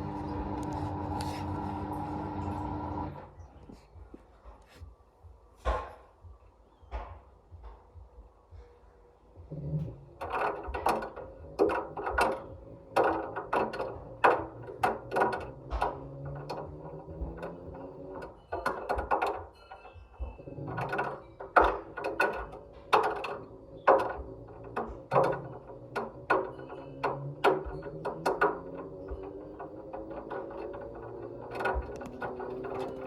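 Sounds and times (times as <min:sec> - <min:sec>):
low motor hum: 0:00.0 - 0:03.8, 0:09.4 - 0:33.0
ball clacking in washing machine drum: 0:09.5 - 0:33.0.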